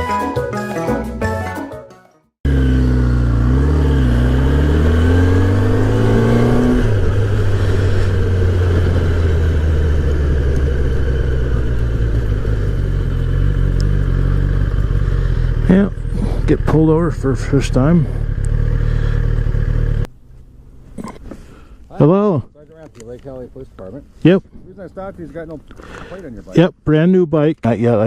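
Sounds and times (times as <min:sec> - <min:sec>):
music: 0:00.0 - 0:02.4
motorcycle engine: 0:02.4 - 0:21.5.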